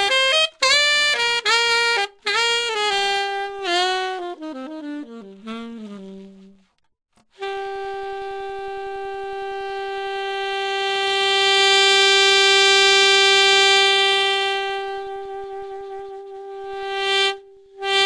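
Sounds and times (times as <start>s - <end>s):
wind instrument long held note: 7.4s - 18.0s.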